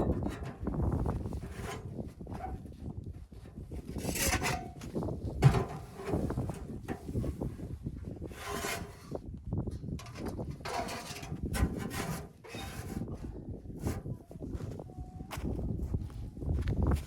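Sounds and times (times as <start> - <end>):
rubbing and scraping: 0.0 - 9.2, 10.0 - 14.1.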